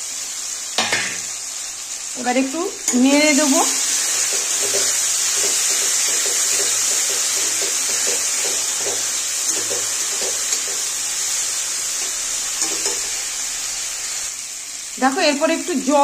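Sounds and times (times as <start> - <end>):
vegetables sizzling in hot oil: 0.0 - 16.0
spatula scraping a pan: 3.9 - 11.0.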